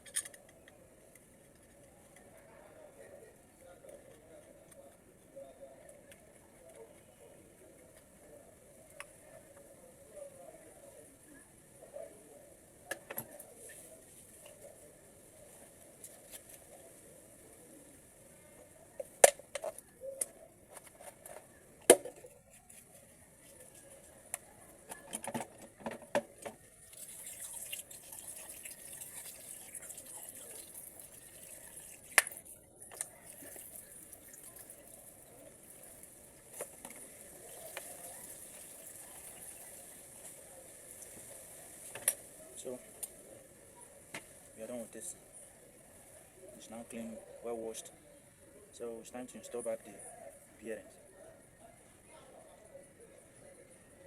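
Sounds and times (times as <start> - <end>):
liquid dripping and splashing: 26.8 - 40.2.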